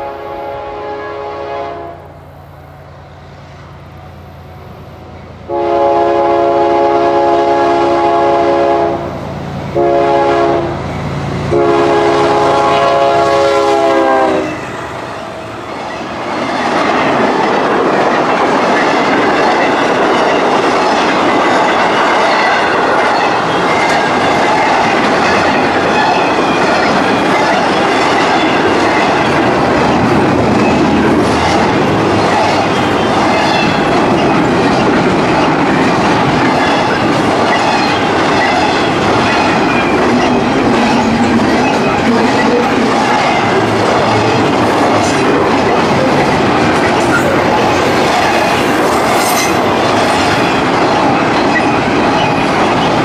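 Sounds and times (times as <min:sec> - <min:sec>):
locomotive horn blasts: 0:00.0 - 0:02.2, 0:05.5 - 0:10.8, 0:11.5 - 0:14.6
train wheels clattering on rails: 0:09.4 - 0:53.0.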